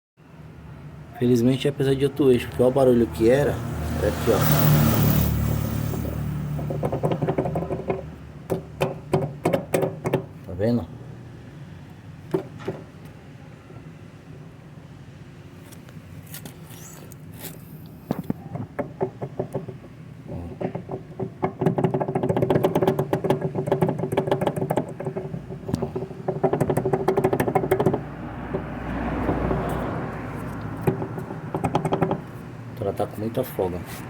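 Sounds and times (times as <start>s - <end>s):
loud rattling and knocking: 5.0s - 10.3s, 18.6s - 29.6s, 30.7s - 32.4s.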